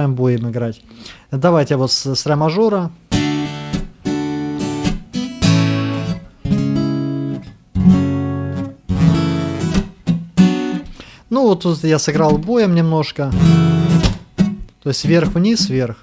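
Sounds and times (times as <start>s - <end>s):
acoustic guitar strumming: 3.1s - 11.2s, 12.1s - 15.9s.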